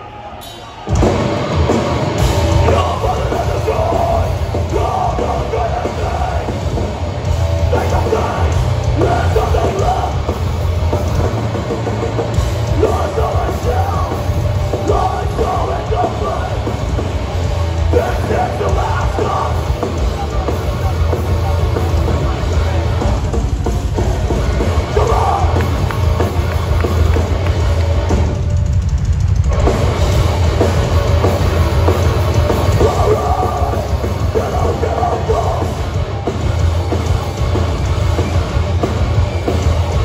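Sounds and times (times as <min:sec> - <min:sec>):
heavy metal band playing: 0:00.0 - 0:40.0
pounding drums: 0:00.4 - 0:40.0
shouted vocals: 0:02.2 - 0:06.8, 0:07.6 - 0:10.4, 0:12.7 - 0:16.8, 0:24.6 - 0:26.9.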